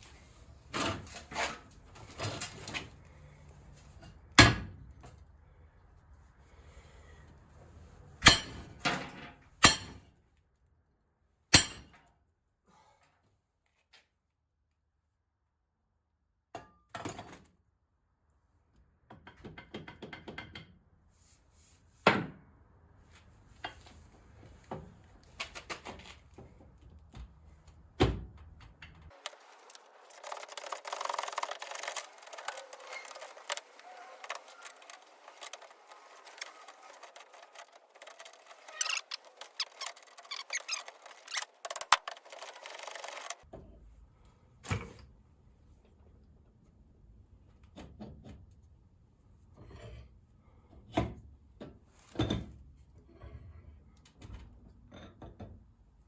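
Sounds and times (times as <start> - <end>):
rattling scraping clatter: 29.1 - 43.4.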